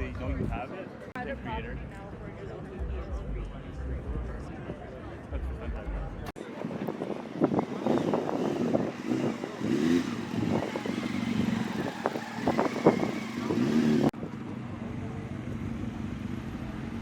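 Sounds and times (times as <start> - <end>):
crowd chatter: 0.0 - 17.0
car engine rumbling: 5.4 - 17.0.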